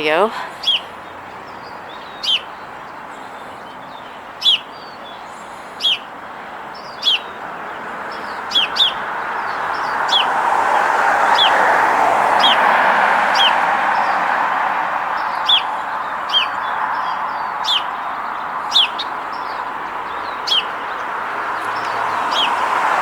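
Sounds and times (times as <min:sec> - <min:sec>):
small bird chirping: 0:00.6 - 0:00.9, 0:01.5 - 0:06.1, 0:06.8 - 0:10.3, 0:13.3 - 0:14.2, 0:15.2 - 0:21.0, 0:21.6 - 0:22.5.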